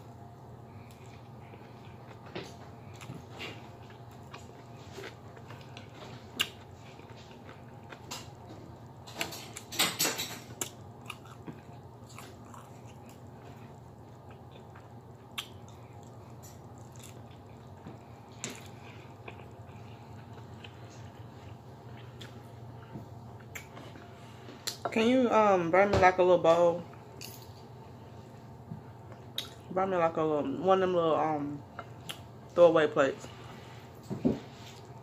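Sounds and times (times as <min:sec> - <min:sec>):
steady low hum: 0:00.0 - 0:35.0
chewing and mouth smacks: 0:00.8 - 0:08.5, 0:10.5 - 0:24.8, 0:29.1 - 0:29.7, 0:31.8 - 0:32.3.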